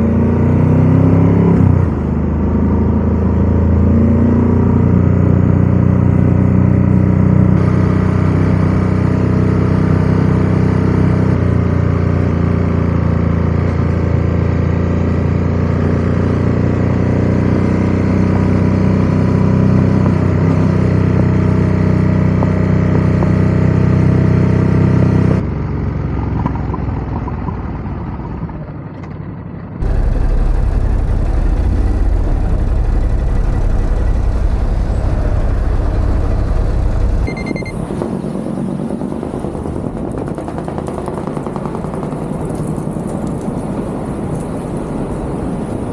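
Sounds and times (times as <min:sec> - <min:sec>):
motorcycle engine running: 0:29.8 - 0:37.8.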